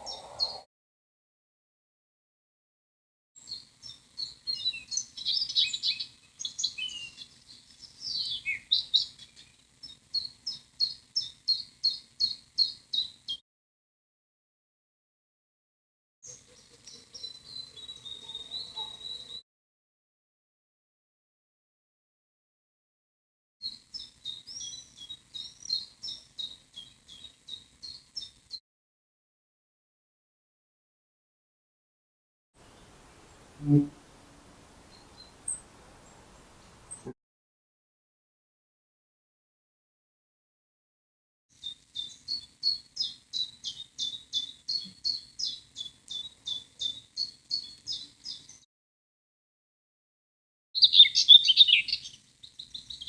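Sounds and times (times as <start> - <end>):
birds chirping: 0.0 - 0.6, 32.6 - 37.1, 50.8 - 53.0
songbird chirping: 0.0 - 0.7, 3.4 - 13.4, 16.2 - 19.4, 23.7 - 28.4, 32.6 - 37.1, 41.6 - 48.6, 50.8 - 53.0.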